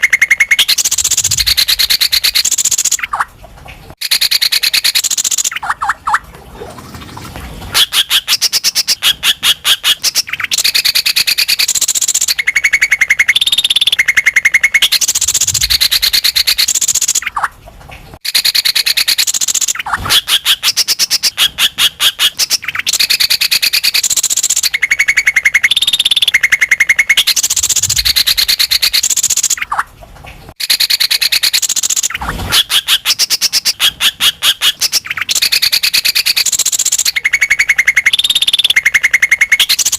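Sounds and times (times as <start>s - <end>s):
bird singing rattling trills: 0.0s - 3.2s, 4.0s - 6.2s, 10.0s - 17.5s, 22.4s - 29.8s, 34.8s - 39.9s.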